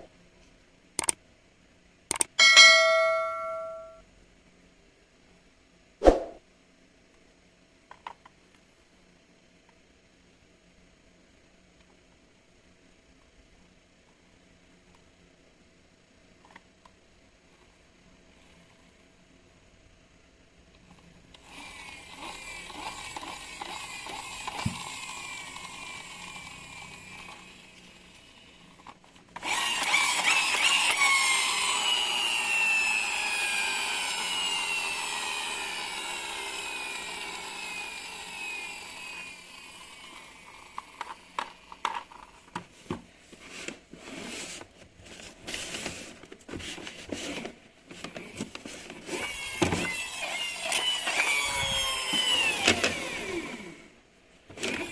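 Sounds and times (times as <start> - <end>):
toy car electric motor whining: 21.4 - 42.3, 49.0 - 53.9, 54.6 - 54.9.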